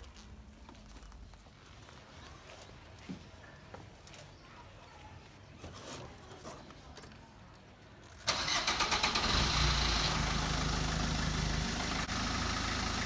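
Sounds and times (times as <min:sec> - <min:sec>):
starter motor cranking: 0:08.3 - 0:10.3
car engine idling: 0:08.3 - 0:13.0.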